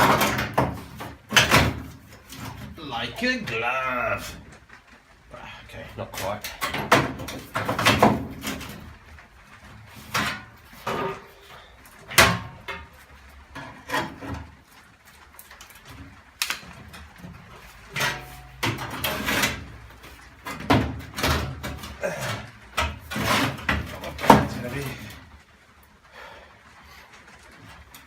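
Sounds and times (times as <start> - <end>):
steel panel clunks and scrapes: 0.0 - 2.9, 6.2 - 8.9, 9.8 - 14.6, 16.6 - 25.2.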